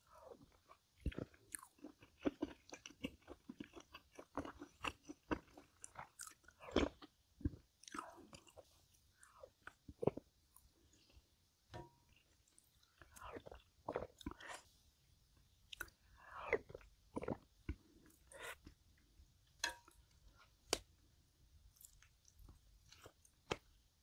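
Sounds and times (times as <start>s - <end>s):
person chewing food: 0.0s - 14.8s, 15.4s - 20.9s, 21.7s - 23.8s.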